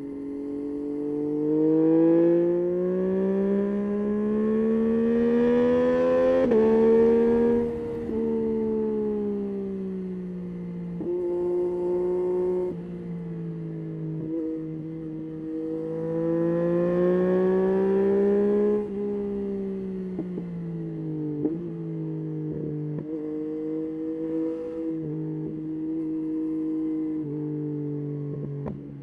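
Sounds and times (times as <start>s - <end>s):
motorcycle engine changing gears: 3.1s - 12.8s.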